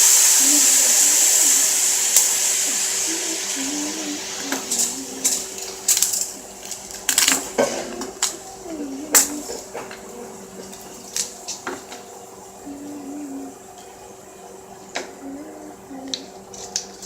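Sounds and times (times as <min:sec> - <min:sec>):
crab shells cracking: 0:04.5 - 0:12.0.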